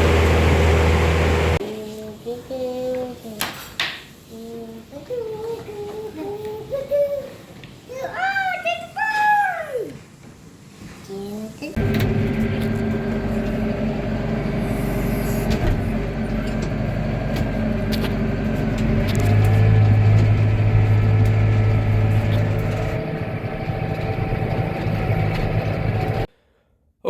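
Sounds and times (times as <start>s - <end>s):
engine running: 0.0s - 1.6s, 11.8s - 26.3s.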